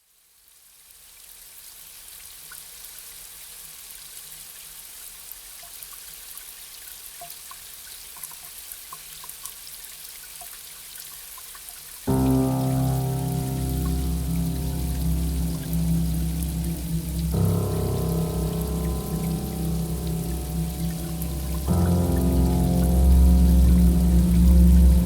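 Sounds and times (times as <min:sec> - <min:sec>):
light rain hissing: 0:12.1 - 0:25.0
raindrops ticking: 0:12.1 - 0:25.0.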